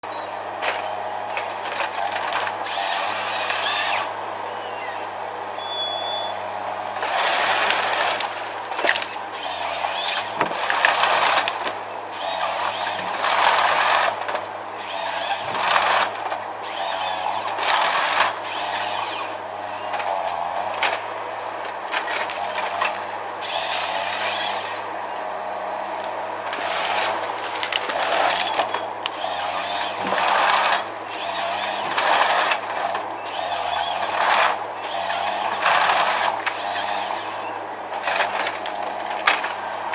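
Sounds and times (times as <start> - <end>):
engine drone: 0.0 - 39.9
power saw cutting wood: 2.0 - 4.2, 7.0 - 19.4, 22.2 - 24.9, 26.0 - 37.4.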